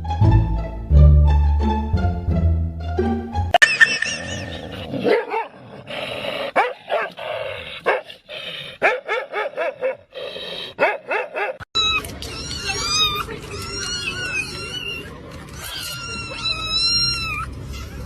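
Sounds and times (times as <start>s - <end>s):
dog barking: 5.0s - 5.6s, 6.6s - 7.2s, 7.8s - 8.1s, 8.8s - 10.1s, 10.8s - 11.6s.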